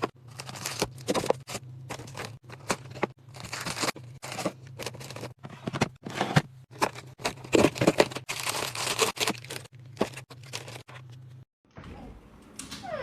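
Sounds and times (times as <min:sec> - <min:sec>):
plastic packaging crinkling: 0:00.0 - 0:05.4, 0:06.7 - 0:10.9.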